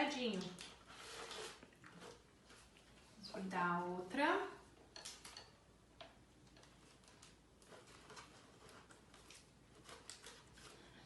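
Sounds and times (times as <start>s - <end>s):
cardstock and tape rustling: 6.6s - 11.0s.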